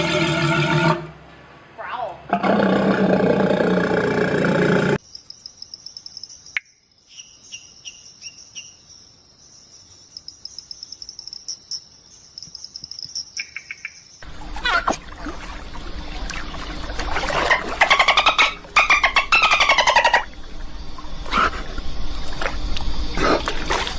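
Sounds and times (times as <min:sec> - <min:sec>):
high-pitched insect chirping: 0:05.0 - 0:14.2.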